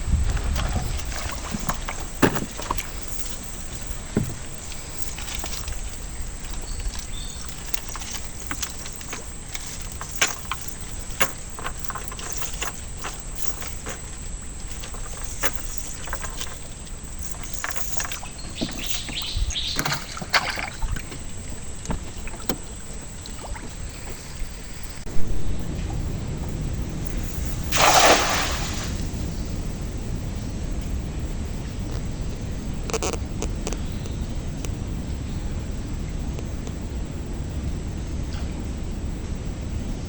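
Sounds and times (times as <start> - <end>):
water splashing around boat: 0.0 - 30.4.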